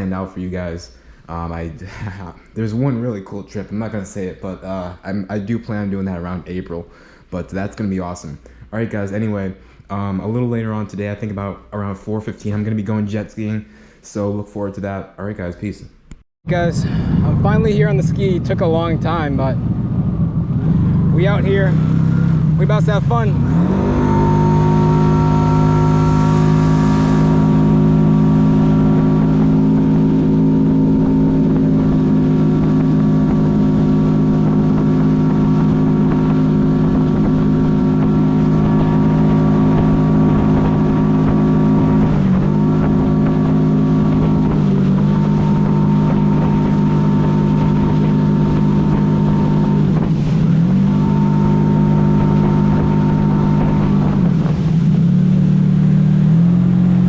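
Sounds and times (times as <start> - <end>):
jet ski engine running: 16.5 - 57.0.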